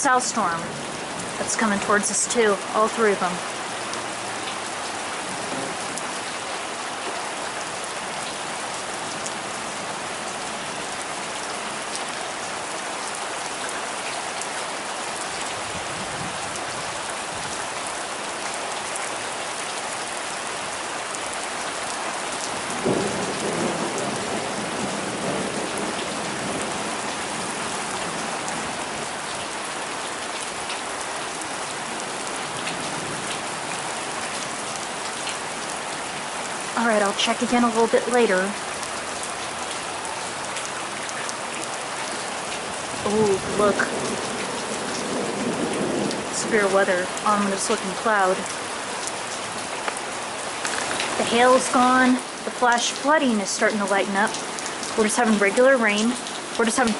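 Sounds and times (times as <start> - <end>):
heavy rain pouring: 0.0 - 56.9
thunder clap rumbling: 22.5 - 28.7, 43.0 - 48.4.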